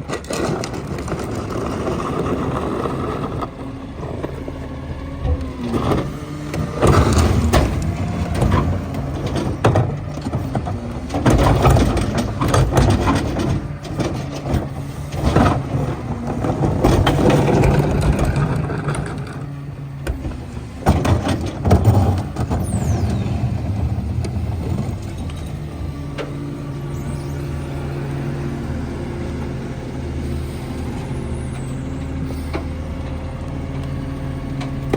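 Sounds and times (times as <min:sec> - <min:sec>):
trash crunching and clattering: 0:00.0 - 0:27.1
garbage truck engine droning: 0:00.0 - 0:34.9.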